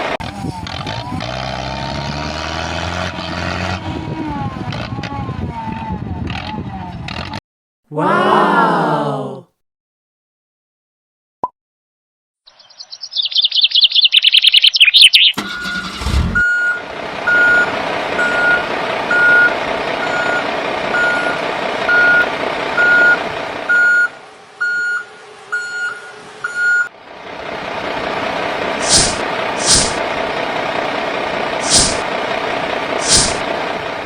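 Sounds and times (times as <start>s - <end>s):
engine running: 0.0s - 7.4s, 15.4s - 34.0s
reversing alarm beeping: 15.3s - 26.9s.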